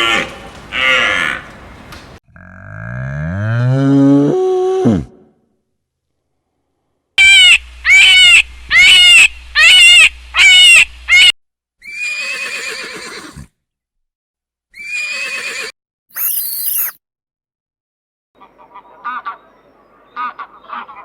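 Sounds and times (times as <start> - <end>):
farm animal calling: 0.0 - 1.9, 7.2 - 13.2.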